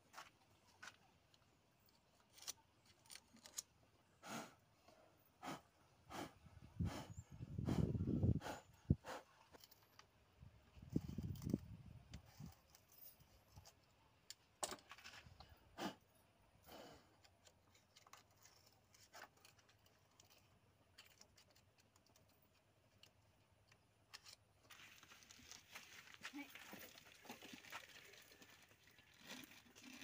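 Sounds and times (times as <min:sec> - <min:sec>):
faint sharp clicks and scrapes: 0:10.9 - 0:15.6, 0:17.2 - 0:26.0.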